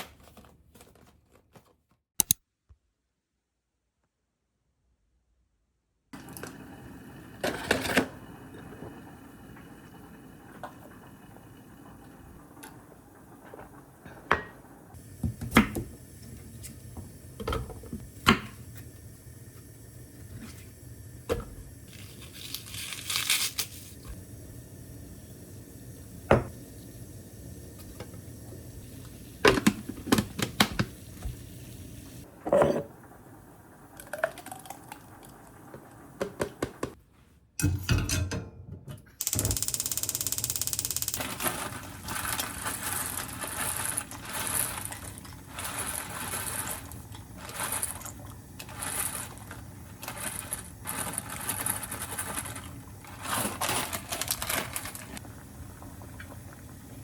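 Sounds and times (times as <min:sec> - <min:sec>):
utensils and dishes clicking: 0:39.2 - 0:42.4.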